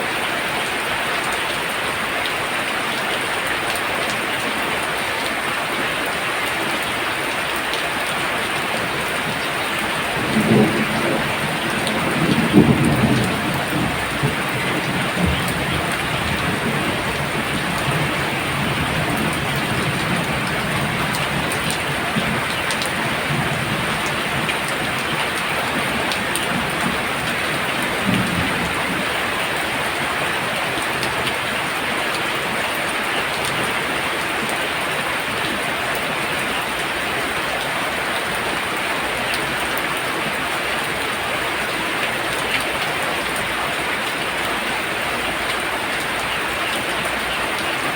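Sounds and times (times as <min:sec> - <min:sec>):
heavy rain pouring: 0:00.0 - 0:47.9
thunder rumbling: 0:08.8 - 0:31.8.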